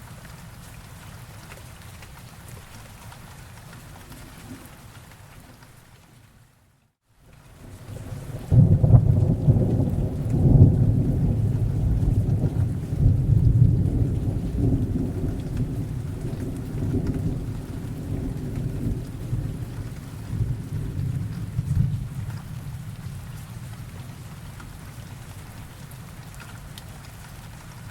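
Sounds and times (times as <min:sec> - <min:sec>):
steady rain: 0:00.0 - 0:27.9
thunder rolling: 0:07.9 - 0:23.3.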